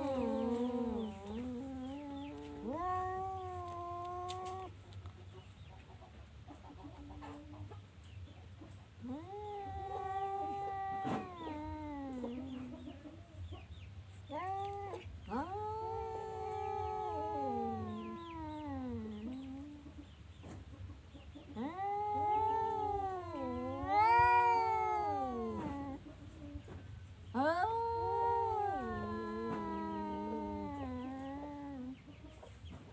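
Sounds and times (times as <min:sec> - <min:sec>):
cat meowing: 0:00.0 - 0:04.8, 0:09.0 - 0:12.9, 0:14.3 - 0:19.8, 0:21.5 - 0:26.0, 0:27.4 - 0:32.0.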